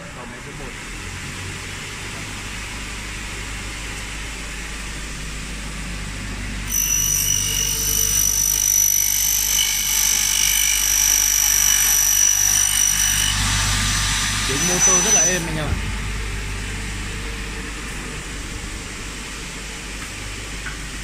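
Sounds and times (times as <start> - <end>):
saw motor running: 6.6 - 17.9
saw blade cutting metal whine: 6.7 - 17.9.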